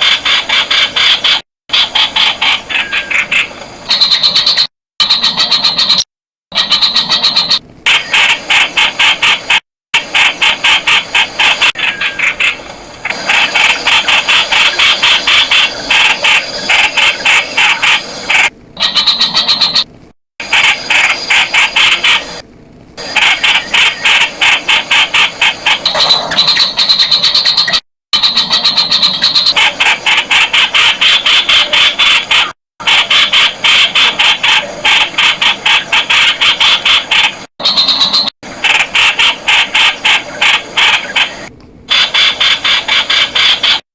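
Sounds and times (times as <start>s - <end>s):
bulbul calling: 2.7s - 6.0s.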